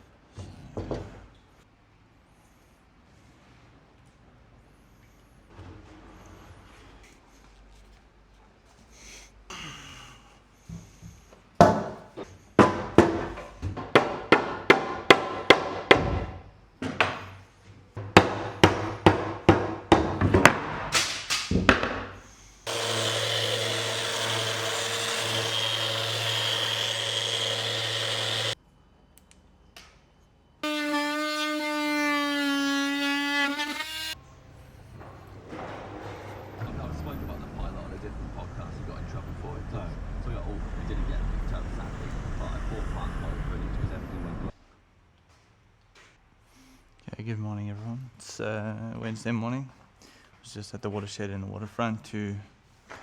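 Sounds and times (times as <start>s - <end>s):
sharp knocks: 18.0s - 22.1s
power tool running: 22.7s - 28.6s.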